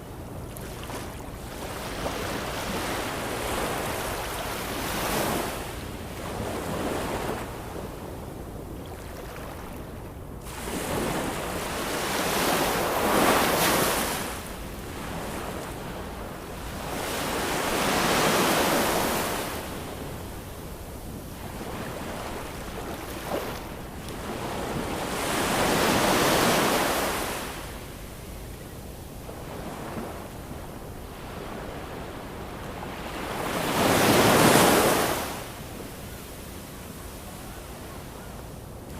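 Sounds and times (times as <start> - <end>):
ocean waves breaking on shore: 0.4 - 7.7, 10.4 - 20.7, 21.4 - 27.8, 31.0 - 35.9.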